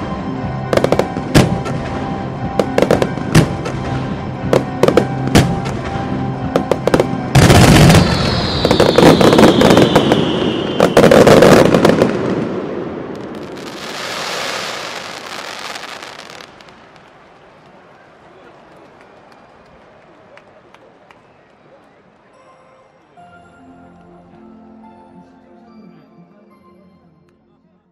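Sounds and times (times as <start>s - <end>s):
music: 0.0s - 12.4s, 22.2s - 27.9s
fireworks bangs and crackling: 0.6s - 17.8s
falling whistle: 7.8s - 11.8s.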